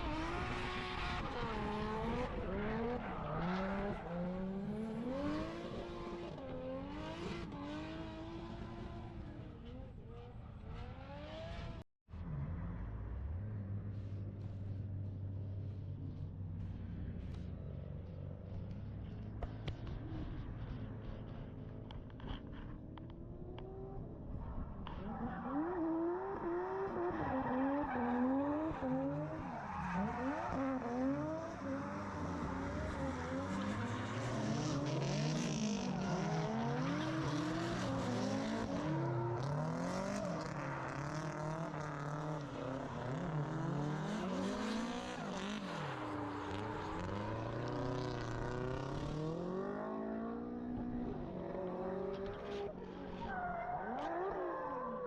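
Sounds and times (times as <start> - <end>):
car engine revving: 0.0 - 53.2.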